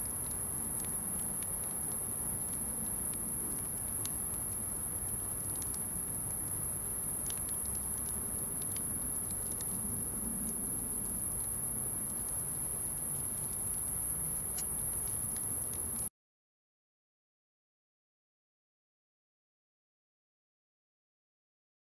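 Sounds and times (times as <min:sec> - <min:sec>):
high-pitched hiss: 0:00.0 - 0:16.1
wood fire crackling: 0:00.0 - 0:16.1.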